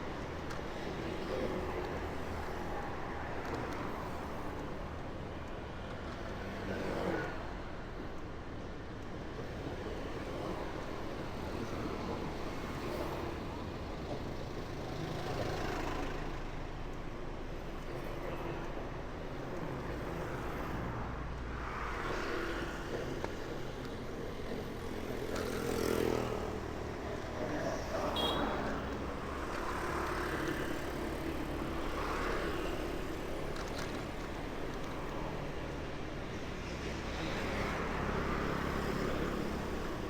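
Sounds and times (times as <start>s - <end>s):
rumble of traffic engines: 0.0s - 40.0s
vehicles passing close by: 9.3s - 40.0s.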